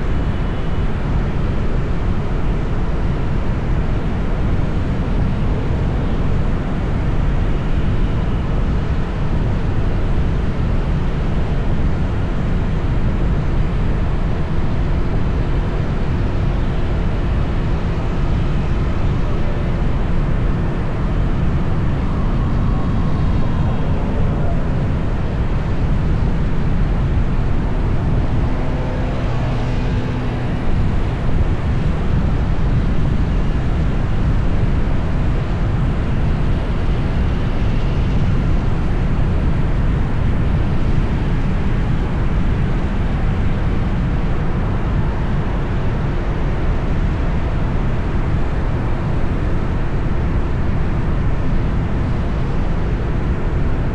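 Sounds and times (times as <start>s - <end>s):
traffic rumble: 0.0s - 53.9s
faint engine passing: 17.9s - 33.3s.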